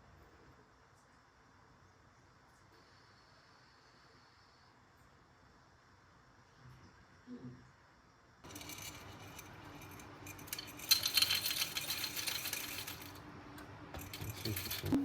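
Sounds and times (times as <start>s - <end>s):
coffee beans rattling: 8.4s - 13.3s, 14.0s - 15.0s.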